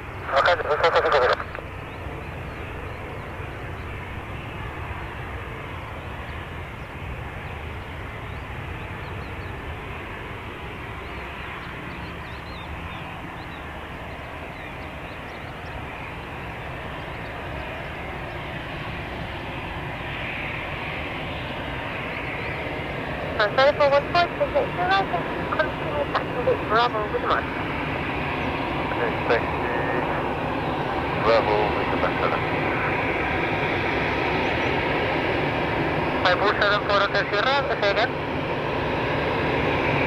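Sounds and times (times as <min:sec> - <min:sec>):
jet engine rush: 0:00.0 - 0:40.0.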